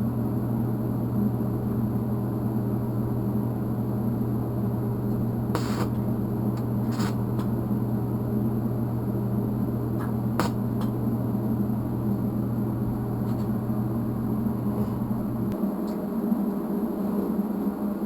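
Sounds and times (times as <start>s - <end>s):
welder humming with hiss: 4.8s - 15.6s.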